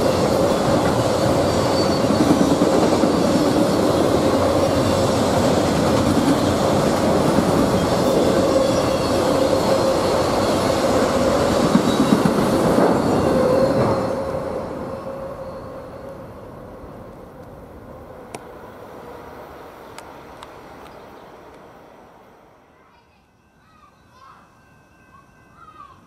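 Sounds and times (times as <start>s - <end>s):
freight train wheels rumbling: 0.0s - 22.6s
constant ringing tone: 21.2s - 26.0s.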